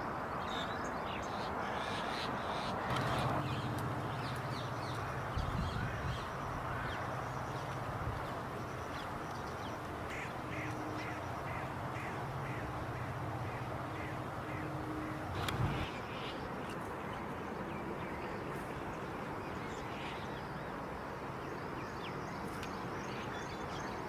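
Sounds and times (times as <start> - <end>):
birds calling: 0.5 - 20.4
steady low hum: 2.8 - 16.6.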